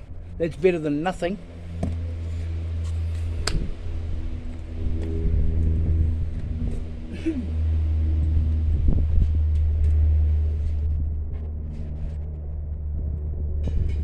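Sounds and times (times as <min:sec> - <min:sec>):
droning motor-like hum: 0:00.0 - 0:14.0
low rumble: 0:00.0 - 0:14.0
sharp knocks: 0:01.8 - 0:02.1.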